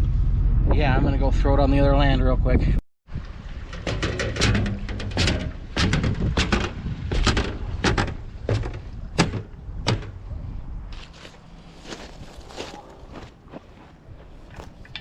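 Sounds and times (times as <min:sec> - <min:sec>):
wind rumbling on microphone: 0:00.0 - 0:15.0
footsteps walking briskly: 0:10.9 - 0:14.9.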